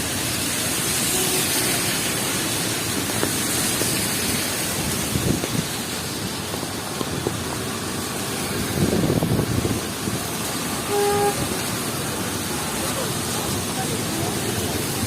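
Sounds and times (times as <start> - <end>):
heavy rain hiss: 0.0 - 15.0
wet street traffic: 0.0 - 15.0
car horn toot: 1.1 - 1.9, 10.8 - 11.6.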